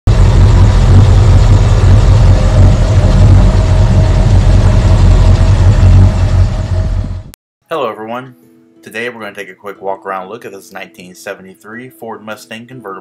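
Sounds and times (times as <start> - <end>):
car engine idling: 0.1 - 7.3.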